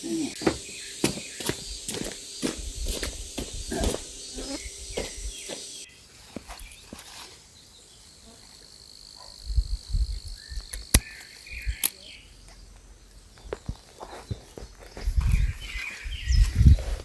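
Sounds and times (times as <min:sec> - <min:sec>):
low thumps: 0:00.0 - 0:05.8
high insect hiss: 0:00.0 - 0:17.0
thin steady insect whine: 0:00.0 - 0:17.0.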